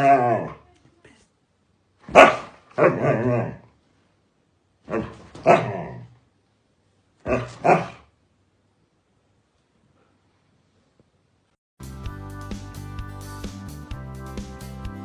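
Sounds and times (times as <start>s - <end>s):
dog barking: 2.0s - 3.6s, 4.9s - 6.0s, 7.2s - 8.1s.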